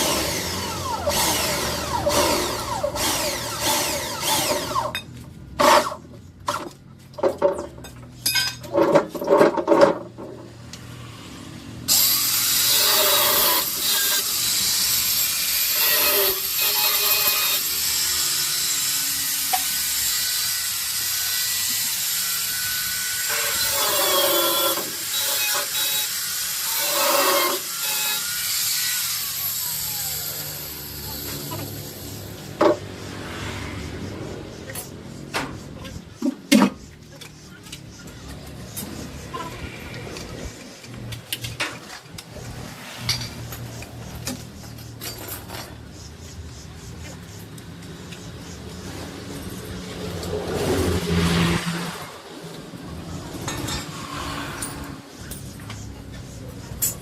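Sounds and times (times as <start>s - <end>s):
power tool hissing on steel: 11.0s - 32.6s.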